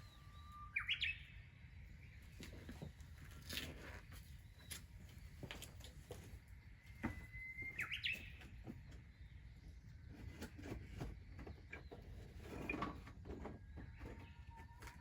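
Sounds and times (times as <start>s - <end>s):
bird chirping: 0.0s - 3.3s, 6.8s - 15.0s.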